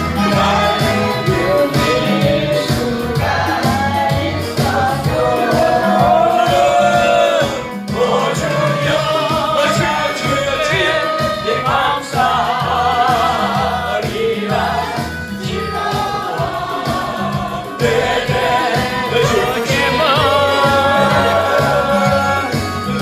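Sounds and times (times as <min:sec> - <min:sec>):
band with bass and drums: 0:00.0 - 0:23.0
congregation and choir singing: 0:00.0 - 0:23.0.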